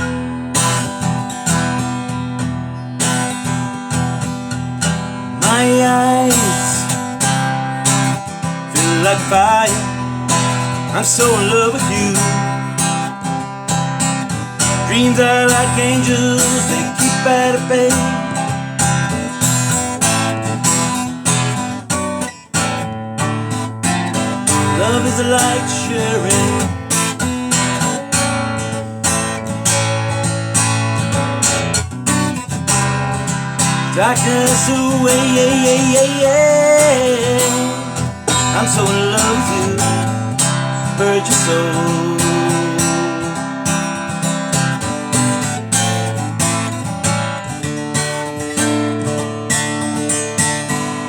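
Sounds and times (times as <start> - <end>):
acoustic guitar strumming: 0.0 - 51.0.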